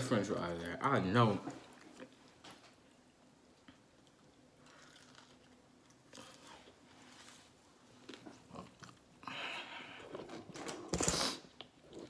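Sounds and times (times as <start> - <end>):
person chewing crispy food: 3.6 - 10.5.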